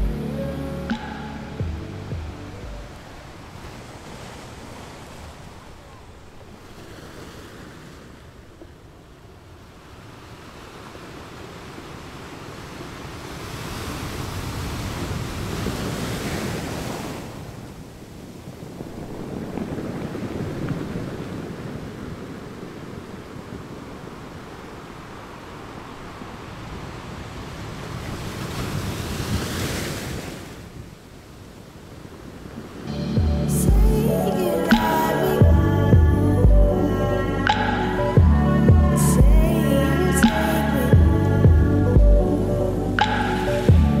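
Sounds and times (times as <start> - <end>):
small waves breaking: 2.2 - 32.9.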